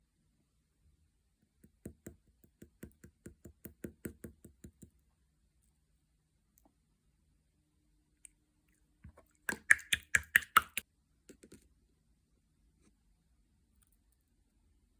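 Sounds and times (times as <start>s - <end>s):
slime popping and clicking: 9.5s - 10.8s.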